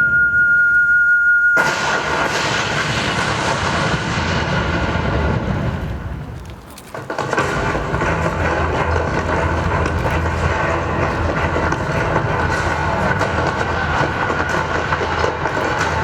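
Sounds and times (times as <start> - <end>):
rumbling crash over loudspeakers: 1.6 - 16.0.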